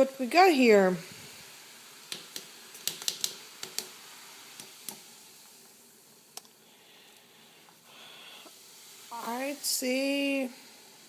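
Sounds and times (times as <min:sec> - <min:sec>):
hot water hissing: 0:00.0 - 0:11.0.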